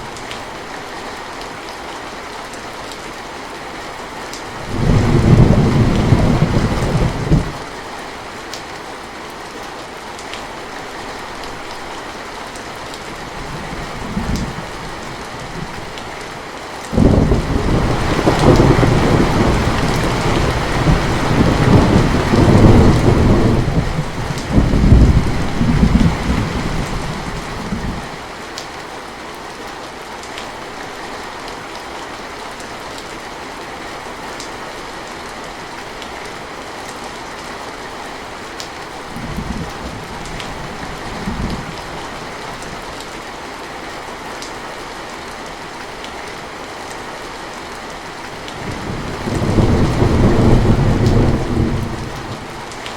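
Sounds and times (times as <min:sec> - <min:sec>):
steady rain: 0:00.0 - 0:52.9
thunder rumbling: 0:04.6 - 0:07.6, 0:17.0 - 0:28.1, 0:48.6 - 0:52.8.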